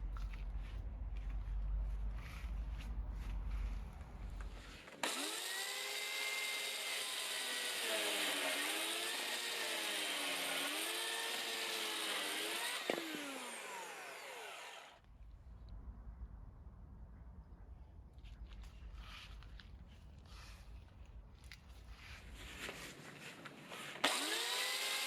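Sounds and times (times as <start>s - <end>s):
electric chainsaw motor whine: 4.9s - 15.0s, 23.7s - 25.0s.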